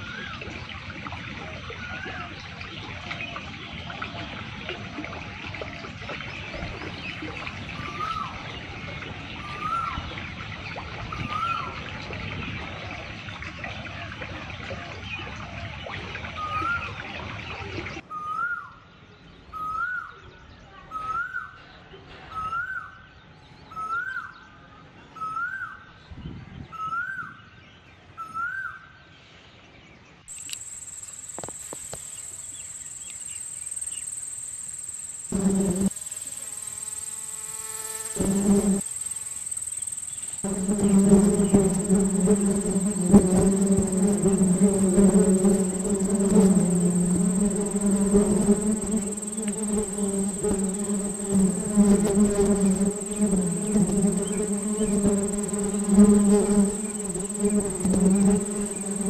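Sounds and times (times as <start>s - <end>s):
outdoor background hiss: 29.2s - 59.0s.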